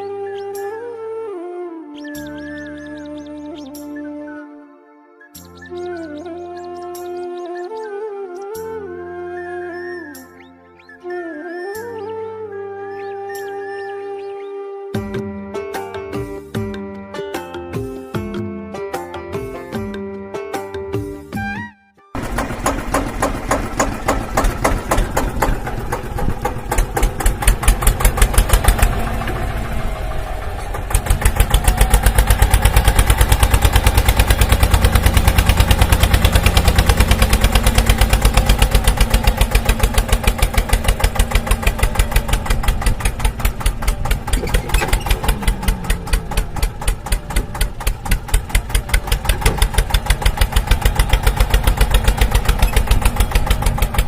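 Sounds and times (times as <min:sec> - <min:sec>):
small tractor engine running: 0:22.2 - 0:54.0.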